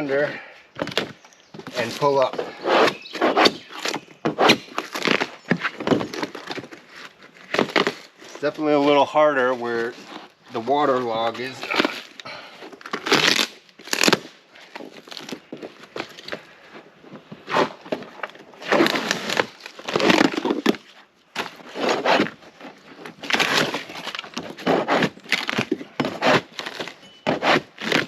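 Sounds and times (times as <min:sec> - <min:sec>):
scraper tearing styrofoam: 0:01.8 - 0:08.4, 0:11.5 - 0:14.3, 0:18.6 - 0:28.0.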